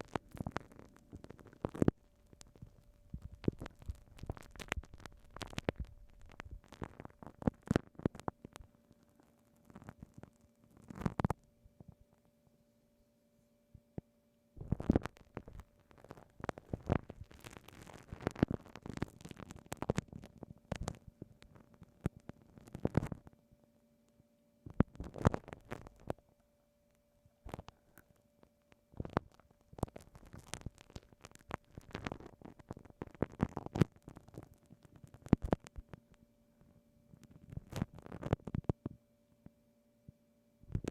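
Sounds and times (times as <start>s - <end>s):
glue stick crackling and popping: 0.0s - 11.4s, 14.6s - 23.4s, 24.7s - 26.2s, 27.4s - 36.2s, 37.2s - 38.9s.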